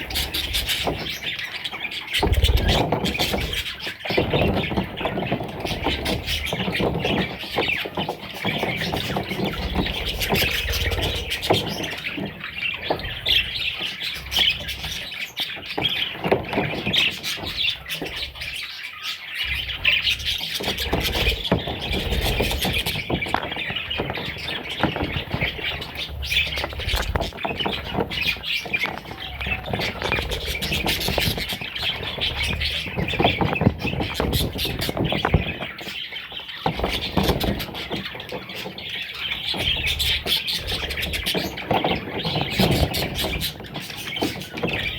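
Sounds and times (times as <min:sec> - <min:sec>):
parrot chicks chirping and squawking: 0:00.0 - 0:44.9.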